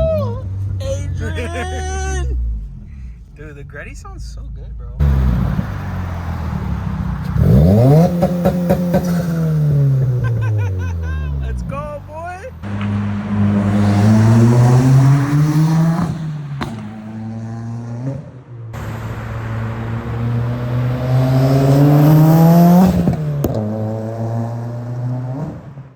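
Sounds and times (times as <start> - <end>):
car engine accelerating hard: 5.0 - 25.9.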